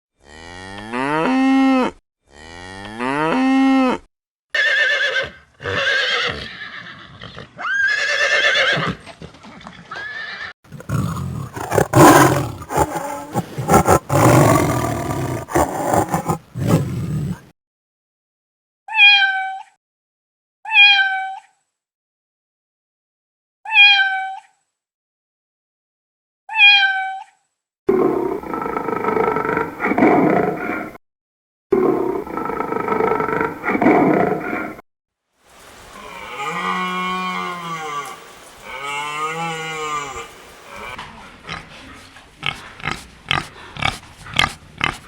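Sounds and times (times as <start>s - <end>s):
harsh noisy animal call: 10.7s - 17.4s
long rising animal calls: 10.7s - 17.4s
short animal calls: 10.8s - 17.4s.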